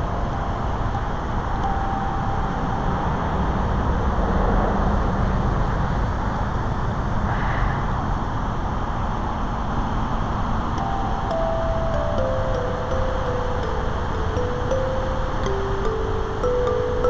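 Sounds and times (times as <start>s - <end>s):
held chime note: 0.0s - 3.7s, 10.8s - 17.0s.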